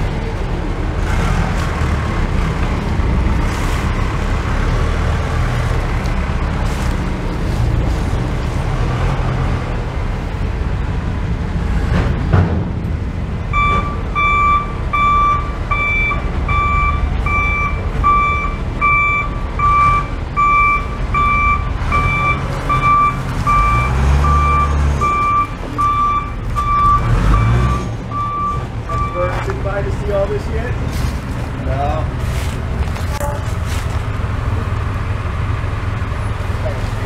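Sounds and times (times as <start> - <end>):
truck engine rumble: 0.0 - 37.0
truck reversing alarm beeping: 13.5 - 29.5.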